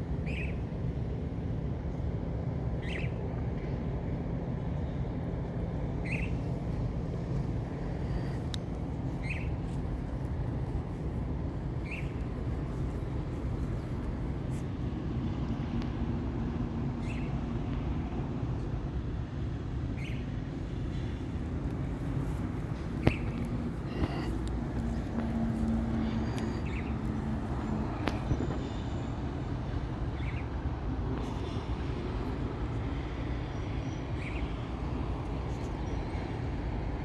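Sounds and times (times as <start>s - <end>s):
steady low rumble: 0.0s - 37.0s
bird chirping: 6.0s - 6.4s, 9.2s - 9.8s, 11.8s - 12.2s, 20.0s - 20.3s, 26.0s - 27.1s.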